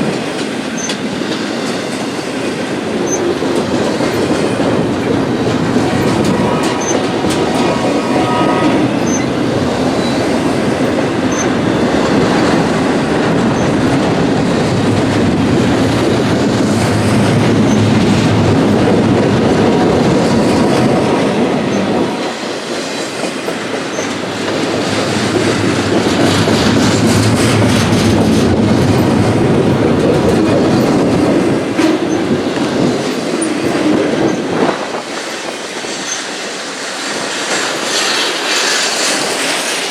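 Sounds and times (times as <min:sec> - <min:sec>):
freight train rumble: 0:00.0 - 0:39.9
wheels clacking over rail joints: 0:00.0 - 0:39.9.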